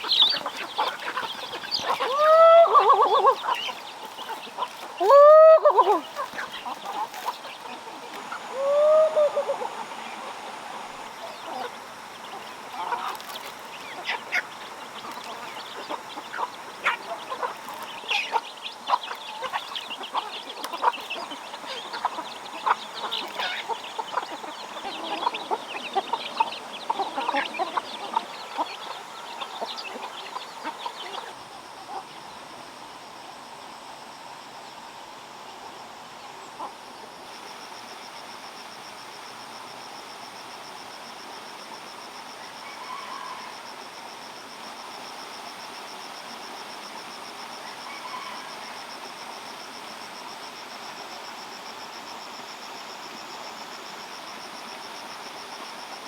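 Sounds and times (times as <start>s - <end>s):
chickens clucking: 0.0s - 32.5s.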